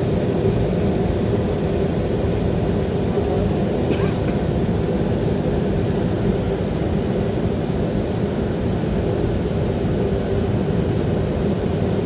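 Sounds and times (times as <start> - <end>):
aircraft engines idling: 0.2 - 7.7.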